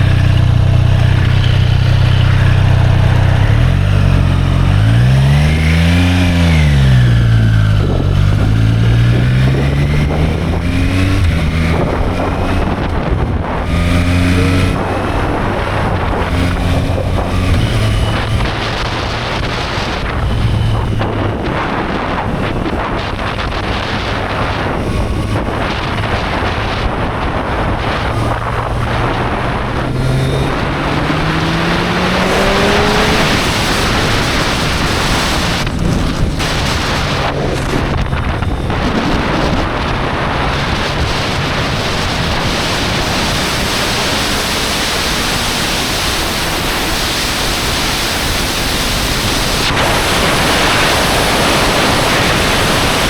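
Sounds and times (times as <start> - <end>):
motorcycle engine revving: 0.0 - 53.0
wind noise on microphone: 0.0 - 53.0.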